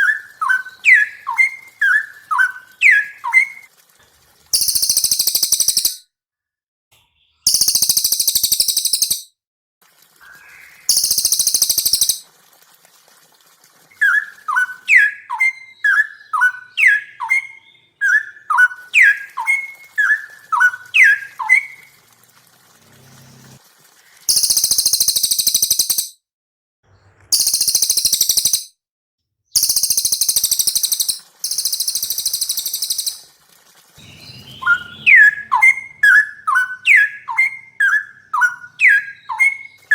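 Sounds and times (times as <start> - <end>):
bird singing shrill trills: 0.0 - 3.7, 4.6 - 6.0, 7.4 - 9.3, 10.4 - 12.2, 14.0 - 21.8, 24.3 - 26.2, 27.4 - 28.7, 29.6 - 33.3, 34.0 - 39.9
bird whistling downward notes: 0.0 - 3.7, 4.6 - 6.0, 7.5 - 9.3, 10.2 - 12.2, 14.0 - 21.9, 24.3 - 26.1, 27.3 - 28.7, 29.6 - 33.3, 34.0 - 39.9.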